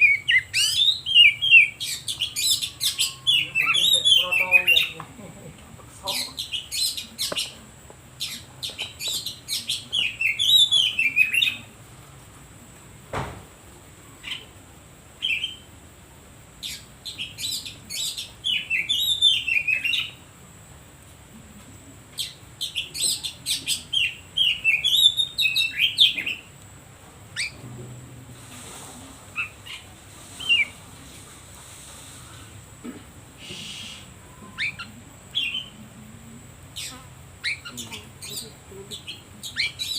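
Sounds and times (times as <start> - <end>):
bird whistling song: 0.0 - 4.9, 8.2 - 11.6, 15.2 - 15.7, 16.6 - 20.2, 22.2 - 26.5, 27.4 - 27.6, 30.4 - 30.8, 33.4 - 35.8, 36.8 - 38.4, 39.0 - 39.9.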